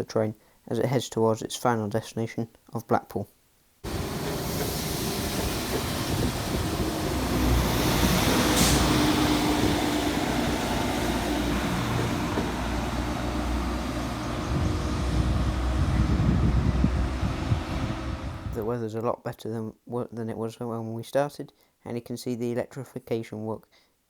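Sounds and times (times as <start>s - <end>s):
sharp high hiss: 3.8s - 11.8s
train engine drone: 3.8s - 18.6s.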